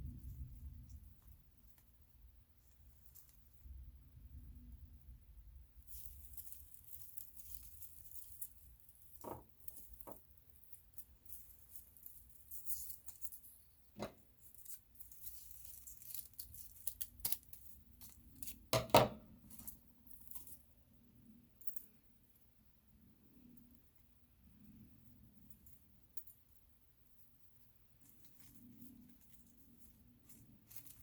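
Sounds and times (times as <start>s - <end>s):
dried flowers and paper rustling: 0.0s - 4.4s, 5.8s - 18.8s, 27.9s - 31.0s.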